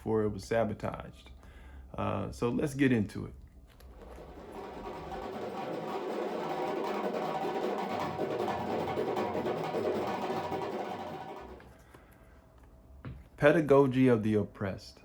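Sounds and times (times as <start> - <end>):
instrumental music: 3.9 - 11.8.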